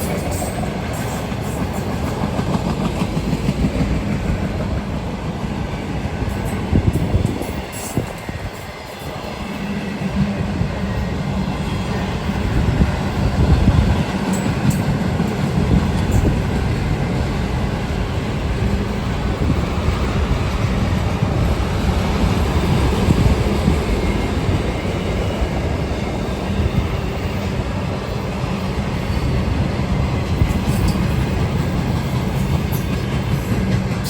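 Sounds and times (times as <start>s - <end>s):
faint clickety-clack: 0.0s - 5.4s, 30.2s - 34.0s
train wheels rumbling on rails: 0.0s - 34.0s.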